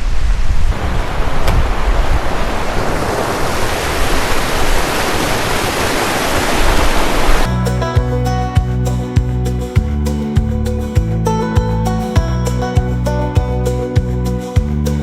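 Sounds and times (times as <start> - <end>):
river water rushing: 0.4 - 7.5
acoustic guitar music: 7.5 - 15.0.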